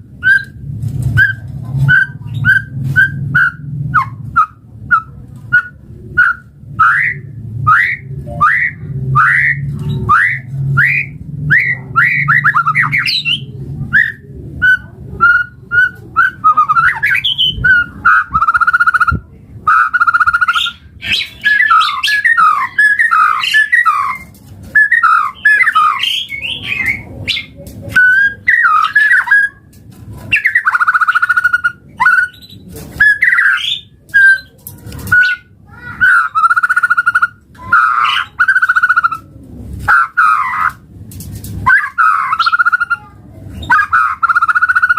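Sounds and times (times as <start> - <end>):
bird singing whistled phrases: 1.2 - 29.6, 30.3 - 34.5.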